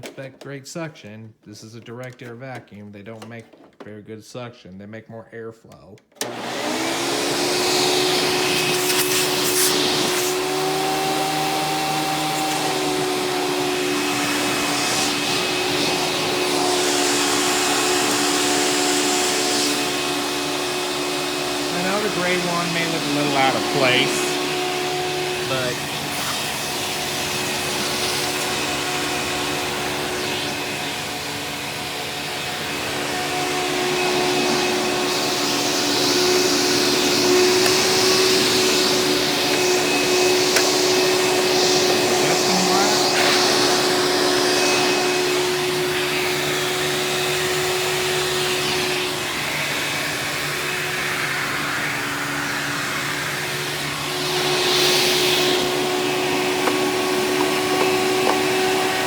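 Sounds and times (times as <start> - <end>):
vacuum cleaner motor hum: 6.1 - 59.0
air rushing through vacuum hose: 6.6 - 59.0.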